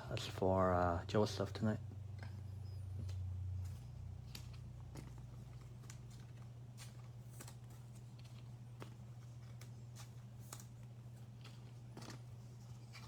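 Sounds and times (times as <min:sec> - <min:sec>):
steady low hum: 0:00.0 - 0:13.0
trading cards clicking and rustling: 0:02.9 - 0:13.0.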